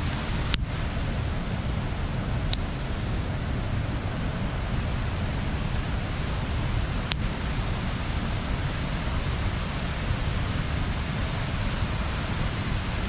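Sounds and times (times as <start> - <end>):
burning wood popping: 0.0 - 7.3, 11.5 - 13.0
bonfire burning: 0.0 - 13.0.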